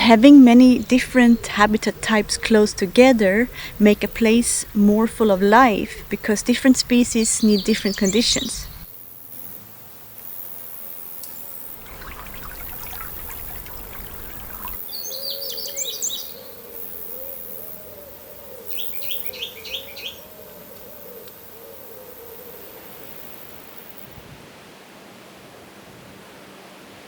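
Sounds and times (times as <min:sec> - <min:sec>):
outdoor background noise: 0:00.0 - 0:27.0
songbird singing high notes: 0:04.1 - 0:08.9, 0:11.8 - 0:16.4.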